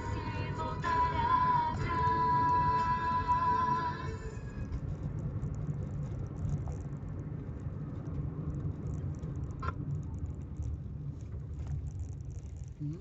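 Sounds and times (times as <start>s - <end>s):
car stereo music: 0.0s - 4.9s
car engine and road noise: 0.0s - 13.0s.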